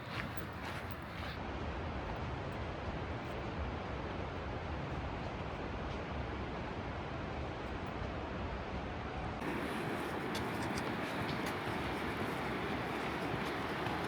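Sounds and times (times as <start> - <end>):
creek water flowing: 9.4 - 14.0.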